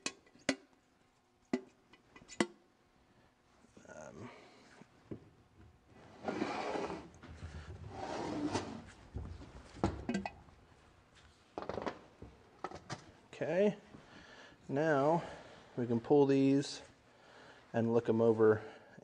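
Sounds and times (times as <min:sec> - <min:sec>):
metal scraping and sliding: 0:06.1 - 0:07.1, 0:07.9 - 0:08.9.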